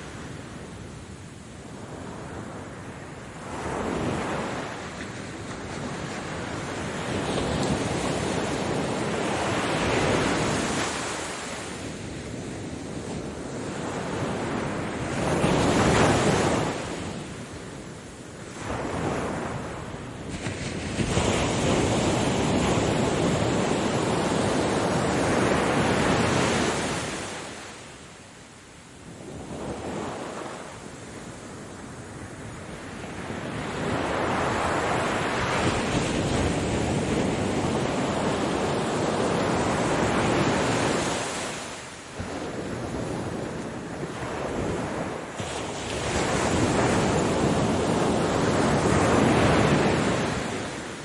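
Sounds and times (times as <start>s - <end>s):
ocean waves breaking: 32.0s - 51.0s.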